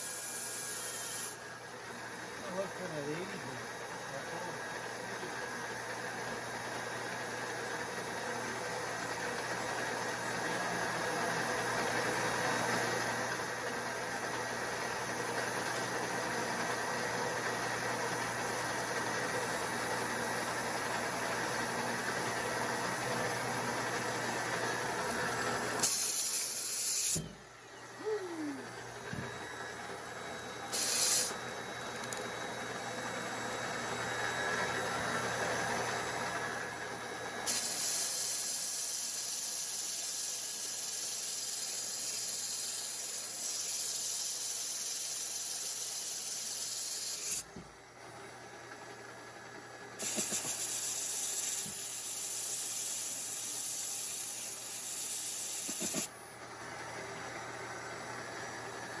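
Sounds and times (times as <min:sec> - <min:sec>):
pressurized air hissing: 0:30.7 - 0:31.4, 0:37.5 - 0:42.4, 0:50.0 - 0:56.1.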